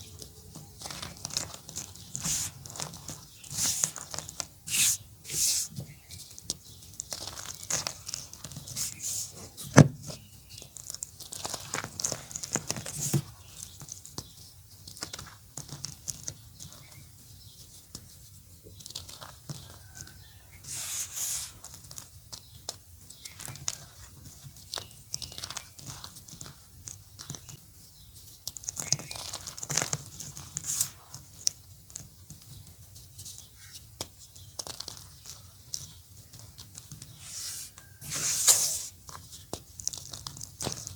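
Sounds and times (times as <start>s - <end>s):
chalk crumbling by hand: 0.1s - 40.9s
sharp crack of chalk: 2.1s - 5.8s, 20.7s - 21.6s, 30.6s - 31.5s, 37.1s - 40.9s.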